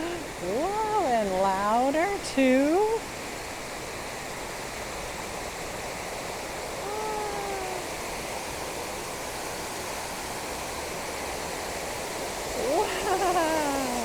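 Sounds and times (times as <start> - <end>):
fountain water rushing: 0.0 - 14.0
high voice-like call: 6.8 - 8.0.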